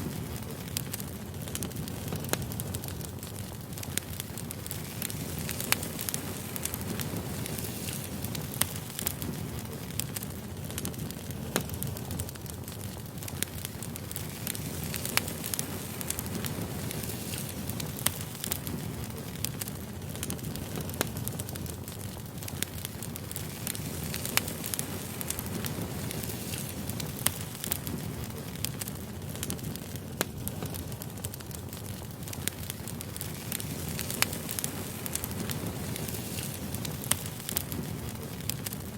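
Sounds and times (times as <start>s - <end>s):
campfire crackling: 0.0s - 38.9s.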